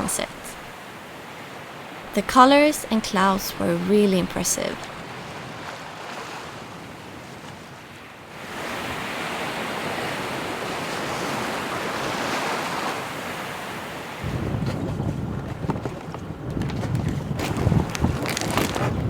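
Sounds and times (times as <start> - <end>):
wind buffeting microphone: 14.2 - 19.0.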